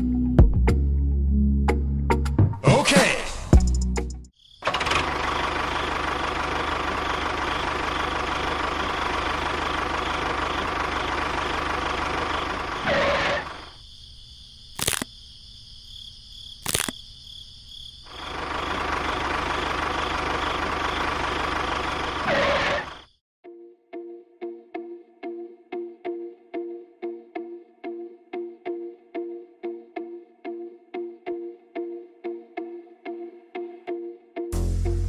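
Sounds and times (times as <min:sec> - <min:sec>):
small motor running: 0:04.7 - 0:13.6, 0:18.2 - 0:23.1
sharp clicks: 0:14.7 - 0:15.1, 0:16.6 - 0:17.0.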